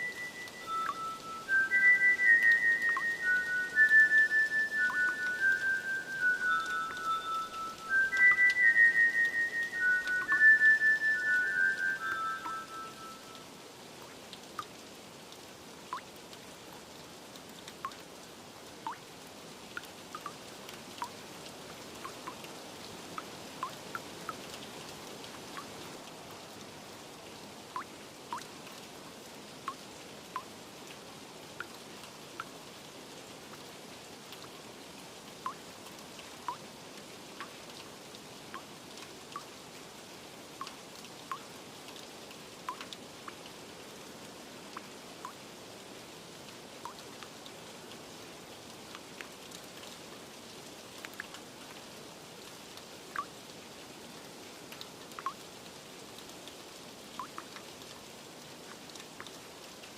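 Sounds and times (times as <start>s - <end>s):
raindrops plinking: 0.0s - 13.6s, 14.3s - 14.9s, 15.8s - 16.4s, 17.3s - 28.9s, 29.5s - 30.6s, 31.5s - 34.6s, 35.2s - 39.6s, 40.5s - 59.9s
steady rain hiss: 0.0s - 59.9s.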